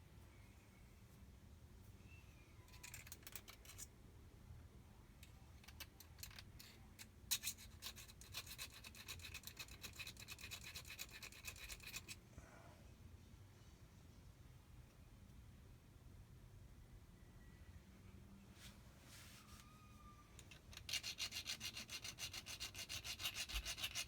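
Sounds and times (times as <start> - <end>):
hand file scraping metal: 20.5 - 24.0.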